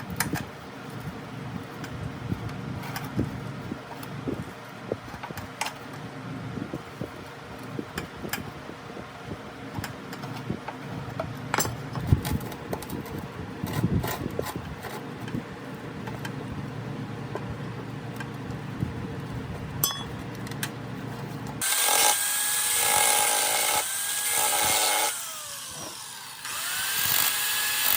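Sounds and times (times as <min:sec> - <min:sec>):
steady background hum: 0:00.0 - 0:27.9
tools and parts clicking and knocking: 0:02.8 - 0:03.2, 0:05.0 - 0:06.0, 0:09.7 - 0:15.4, 0:16.0 - 0:16.4, 0:19.8 - 0:20.8.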